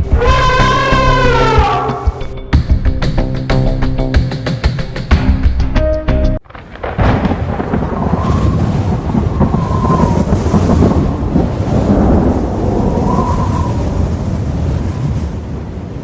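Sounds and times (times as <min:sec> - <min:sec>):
thunder rumbling: 0:06.4 - 0:16.0.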